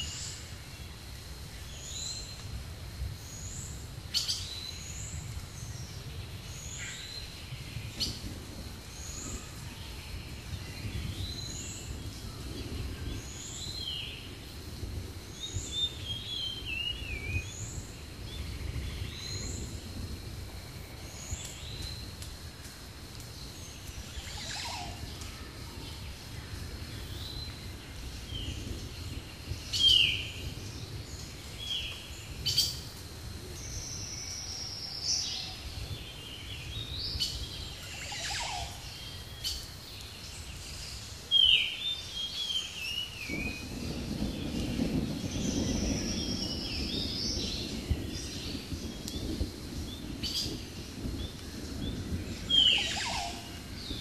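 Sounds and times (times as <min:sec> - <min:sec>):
low background hiss: 0:00.0 - 0:54.0
birds chirping and calling: 0:37.3 - 0:39.6, 0:52.5 - 0:53.5.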